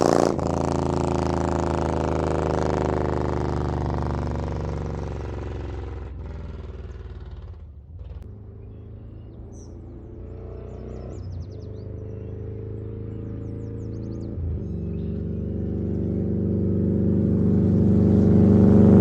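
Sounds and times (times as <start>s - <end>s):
motorcycle engine running: 0.0s - 19.0s
birds chirping faintly: 8.2s - 16.9s.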